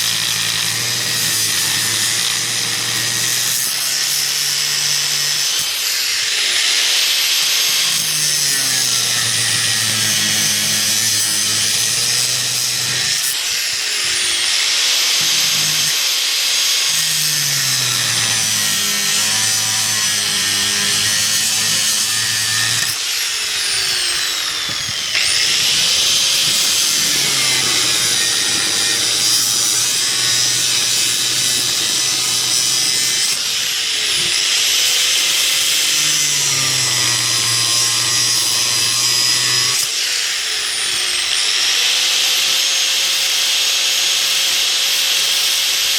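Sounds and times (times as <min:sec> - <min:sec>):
power tool grinding: 0:00.0 - 0:44.6.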